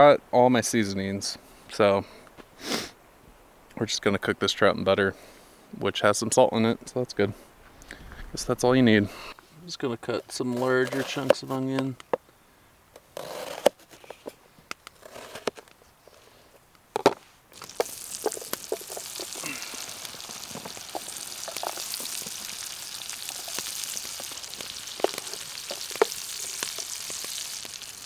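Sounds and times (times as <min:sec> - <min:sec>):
food sizzling in butter: 0:17.5 - 0:28.0
small ticks and pops: 0:17.6 - 0:28.0.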